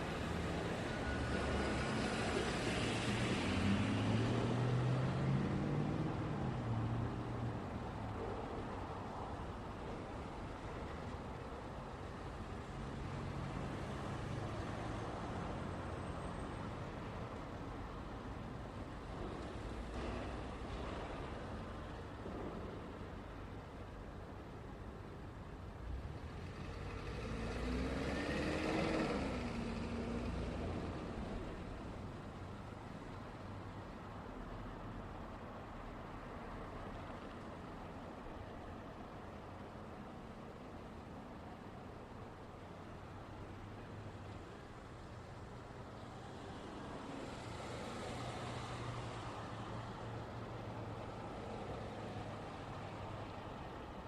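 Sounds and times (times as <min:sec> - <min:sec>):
low traffic rumble: 0:00.0 - 0:54.0
motor vehicle driving past: 0:26.4 - 0:31.1.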